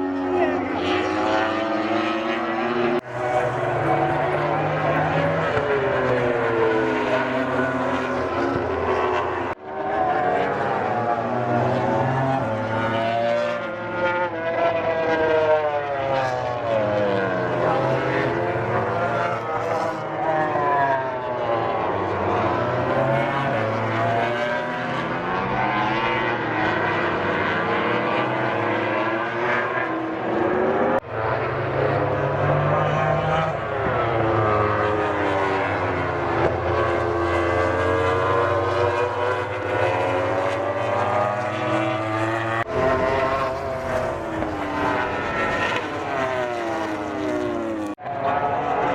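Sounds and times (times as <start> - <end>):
racing motorcycles at high revs: 22.2 - 48.0.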